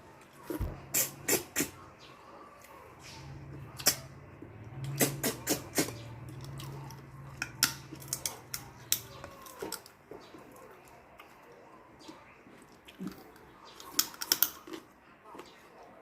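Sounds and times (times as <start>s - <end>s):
chewing food crunches: 12.5s - 15.6s.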